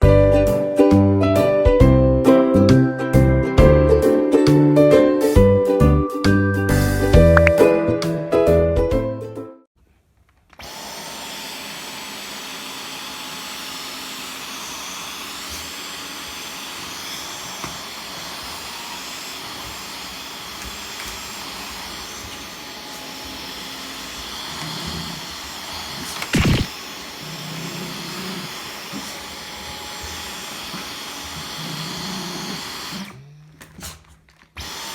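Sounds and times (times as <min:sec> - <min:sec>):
vacuum cleaner running: 0:10.6 - 0:33.3, 0:34.6 - 0:34.9.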